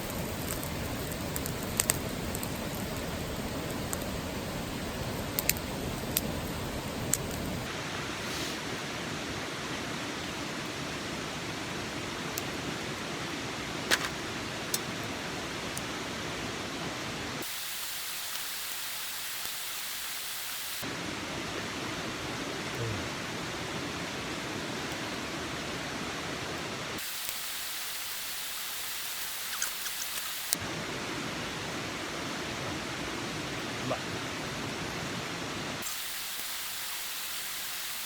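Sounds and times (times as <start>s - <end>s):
fire pops: 0.0s - 8.7s, 13.8s - 15.0s, 17.4s - 20.1s, 27.0s - 30.6s
campfire crackling: 0.0s - 38.0s.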